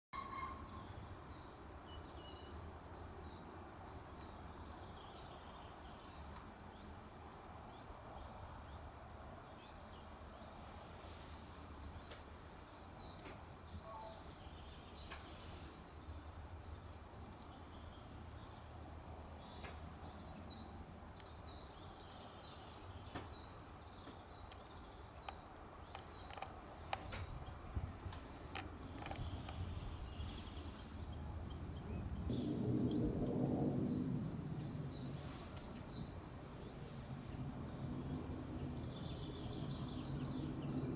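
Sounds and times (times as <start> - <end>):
small birds chirping and singing: 11.9 - 18.7, 19.4 - 32.5, 37.8 - 40.9
steady low rumble: 26.4 - 40.9.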